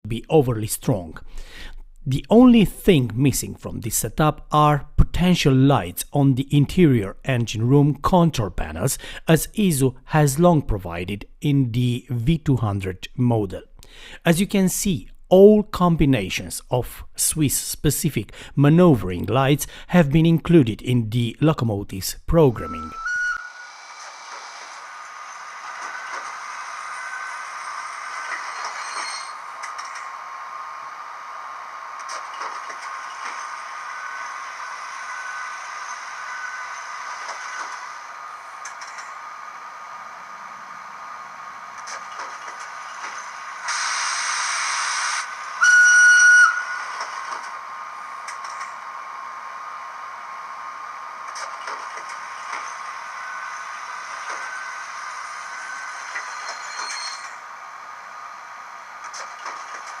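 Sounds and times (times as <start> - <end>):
locomotive whistle blast: 22.5 - 23.8, 43.7 - 47.1.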